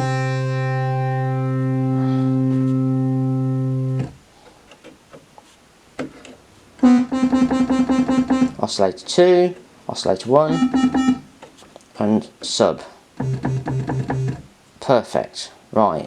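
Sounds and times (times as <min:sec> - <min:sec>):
synthesizer quick repeated notes: 0:06.8 - 0:08.6, 0:10.5 - 0:11.3
synthesizer low note: 0:10.5 - 0:11.2.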